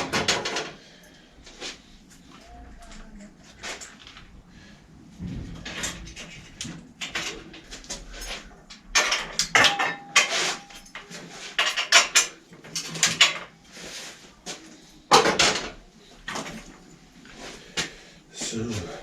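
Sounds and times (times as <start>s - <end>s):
metal tools clattering: 0.0s - 1.2s, 5.4s - 17.5s.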